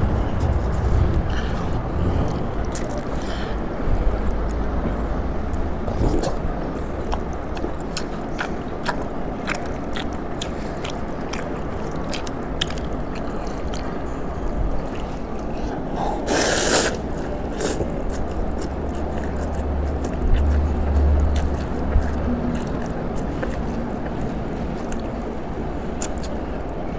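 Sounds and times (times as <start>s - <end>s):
low hum: 0.0s - 7.0s
chewing and slurping noodles: 5.5s - 26.9s.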